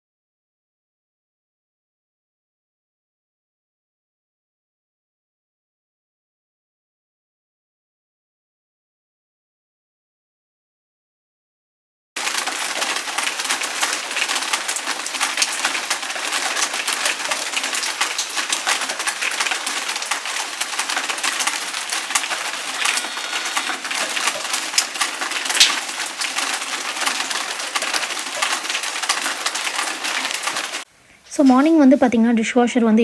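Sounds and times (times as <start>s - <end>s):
chorus of birds chirping: 14.8s - 30.8s.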